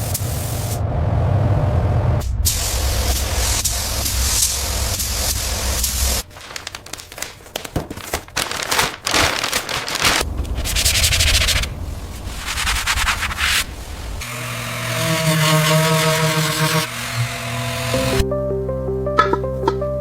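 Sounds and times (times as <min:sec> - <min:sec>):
air hissing: 0:02.3 - 0:06.3
scraping and rubbing on car body: 0:10.4 - 0:13.7
music: 0:17.2 - 0:20.0.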